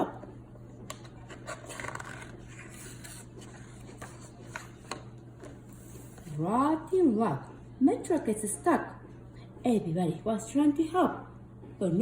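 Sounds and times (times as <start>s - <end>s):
low steady hum: 0.0s - 12.0s
paper rubbing and scraping: 1.3s - 4.8s.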